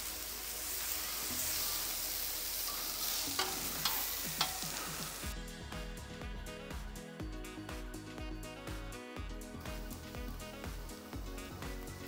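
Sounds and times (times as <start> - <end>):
onions and mushrooms sizzling: 0.0 - 6.6, 9.2 - 12.0
metal tongs clicking and scraping: 3.3 - 4.8.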